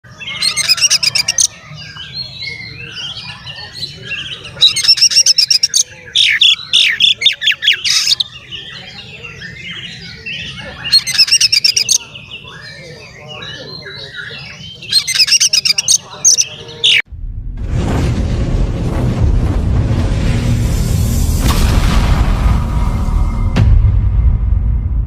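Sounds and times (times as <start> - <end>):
bird singing: 0.0 - 17.1
harsh rattling bird notes: 0.1 - 8.6, 9.3 - 12.8, 13.4 - 17.0
loud whistled bird phrases: 0.1 - 17.0.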